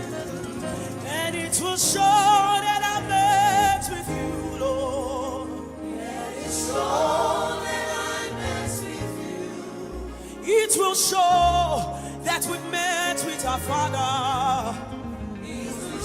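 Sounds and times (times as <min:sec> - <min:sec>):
person singing with vibrato: 0:00.0 - 0:16.0
sustained keyboard chords: 0:00.0 - 0:16.0.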